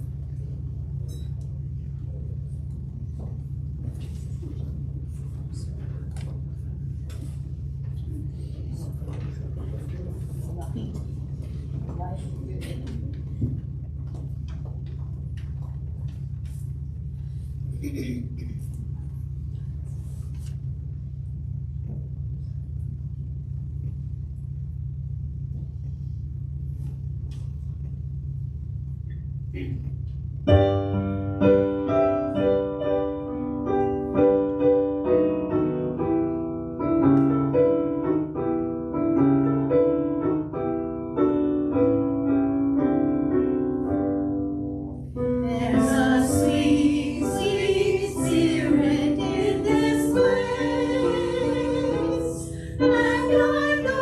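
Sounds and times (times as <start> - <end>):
low steady rumble: 0.0 - 54.0
piano playing: 30.5 - 54.0
voices singing: 45.4 - 54.0.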